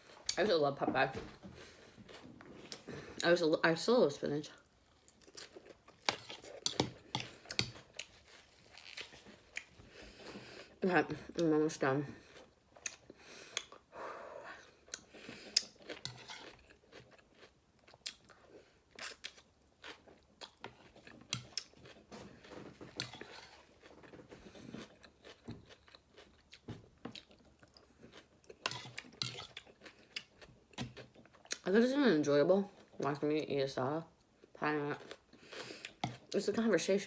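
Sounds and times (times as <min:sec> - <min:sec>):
chewing crisp salad greens: 0:04.8 - 0:10.6, 0:14.6 - 0:31.6.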